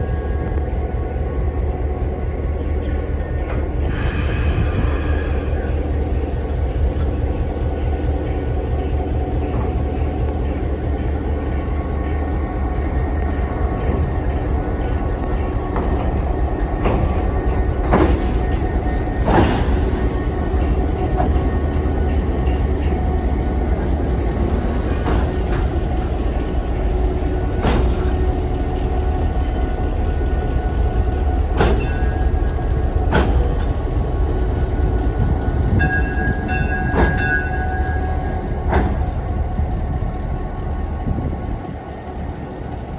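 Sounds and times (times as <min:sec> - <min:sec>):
locomotive engine rumble: 0:00.0 - 0:42.9.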